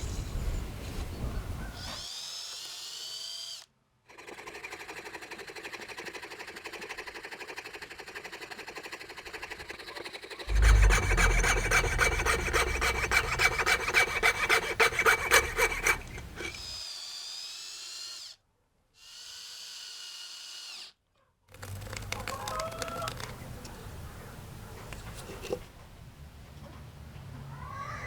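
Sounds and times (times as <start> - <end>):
high-pitched wavering hum: 10.5 - 16.6
power tool rattling: 10.5 - 16.8.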